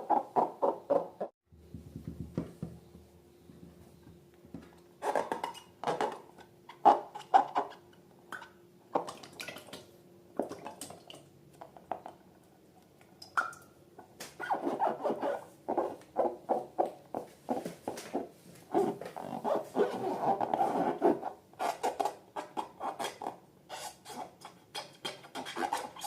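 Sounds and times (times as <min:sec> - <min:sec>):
balloon squeaking and rubbing: 0:14.4 - 0:16.8, 0:17.5 - 0:24.4, 0:25.3 - 0:26.0.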